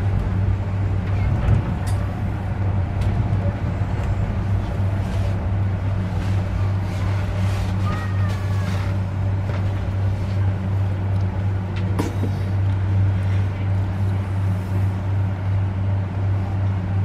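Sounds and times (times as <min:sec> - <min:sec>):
train running hum: 0:00.0 - 0:17.0.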